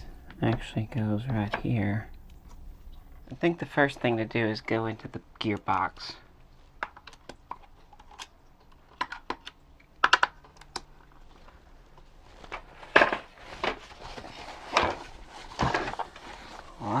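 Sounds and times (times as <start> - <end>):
plastic parts clicking and tapping: 6.8 - 13.8.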